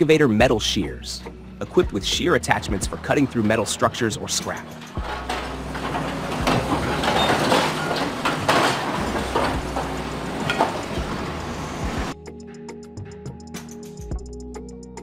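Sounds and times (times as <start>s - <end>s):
excavator engine running: 1.6s - 12.2s
metal clanks and knocks: 1.6s - 12.2s
metal clattering: 1.6s - 12.2s.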